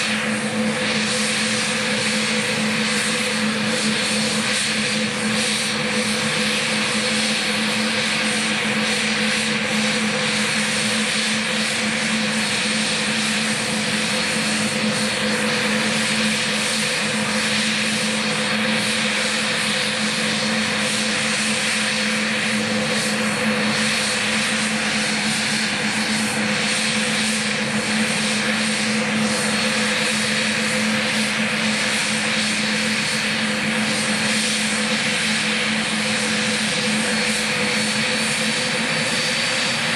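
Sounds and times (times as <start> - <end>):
high engine whine: 0.0 - 39.9
jet engines roaring: 0.0 - 39.9.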